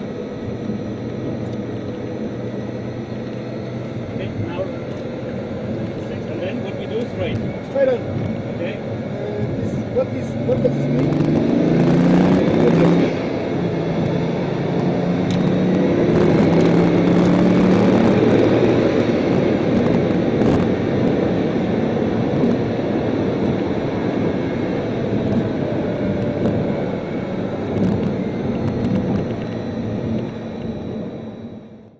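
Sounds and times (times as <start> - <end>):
car engine from inside cabin: 0.0 - 31.9.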